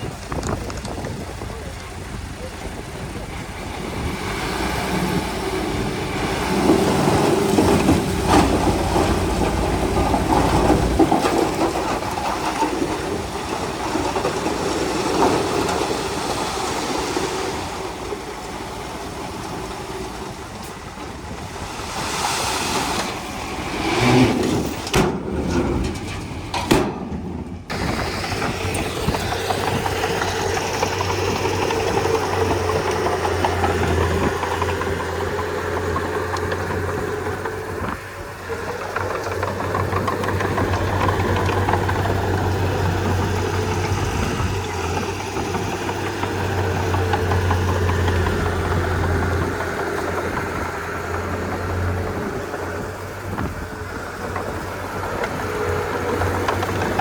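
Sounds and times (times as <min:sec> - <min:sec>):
bulldozer diesel engine under load: 0:00.0 - 0:57.0.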